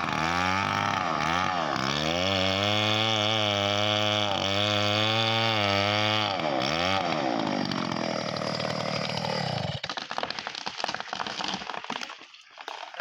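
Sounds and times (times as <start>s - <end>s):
wood cracking and snapping: 0.0s - 3.0s, 4.0s - 13.0s
chainsaw running: 0.0s - 10.1s.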